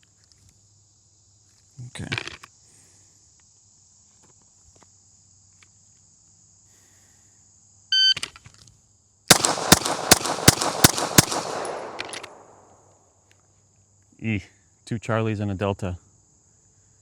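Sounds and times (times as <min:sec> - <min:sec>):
insects buzzing: 0:00.0 - 0:14.3
handgun shots echoing: 0:09.3 - 0:12.8.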